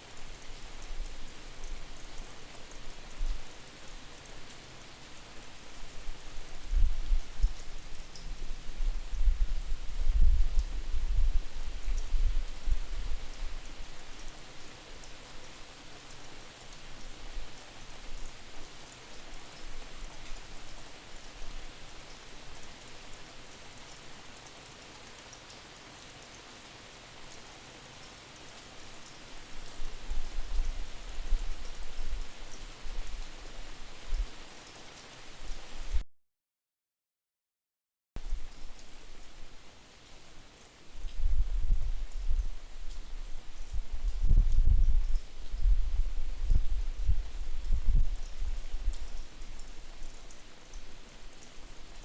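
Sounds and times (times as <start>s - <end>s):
steady rain: 0.0s - 36.0s, 38.2s - 52.0s
wind buffeting microphone: 41.1s - 49.2s.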